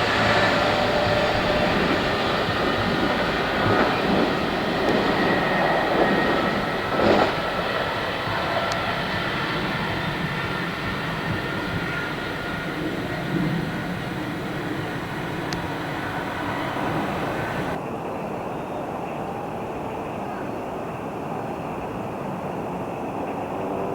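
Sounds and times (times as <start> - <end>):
train wheels rumbling on rails: 0.0 - 17.8.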